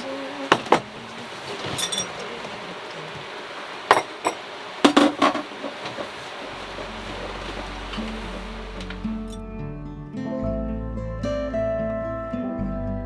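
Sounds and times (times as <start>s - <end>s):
dishes and utensils knocking: 0.5s - 9.1s.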